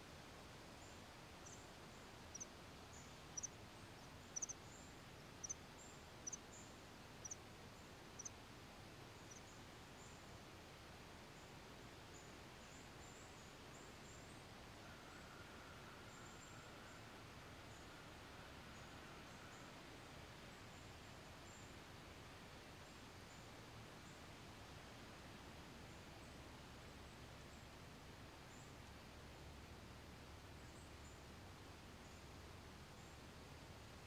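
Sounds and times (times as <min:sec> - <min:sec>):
faint outdoor hiss: 0:00.0 - 0:34.0
small bird chirping: 0:02.3 - 0:06.6.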